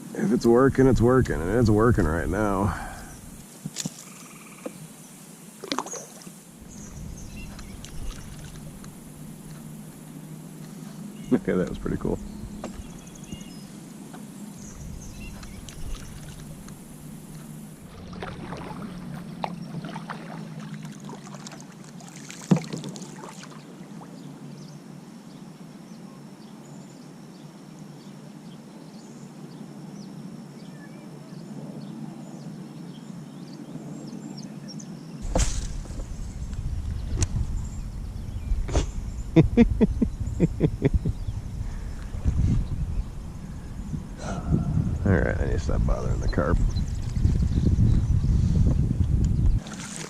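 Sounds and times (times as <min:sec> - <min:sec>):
water splashing around kayak hull: 0:05.6 - 0:09.7, 0:15.0 - 0:24.2, 0:35.2 - 0:37.2, 0:49.6 - 0:50.0
loud low rumble: 0:06.6 - 0:10.0, 0:35.2 - 0:47.9.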